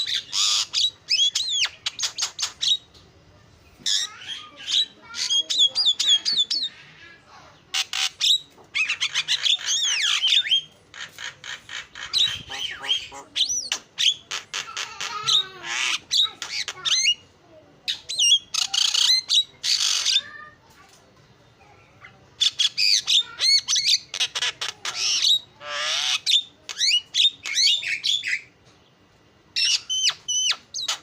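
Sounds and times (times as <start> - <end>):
myna whistling and squawking: 11.5 - 14.5.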